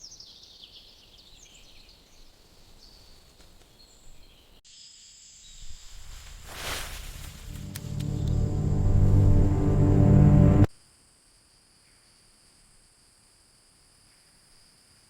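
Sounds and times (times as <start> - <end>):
faint low hiss: 2.3 - 10.7.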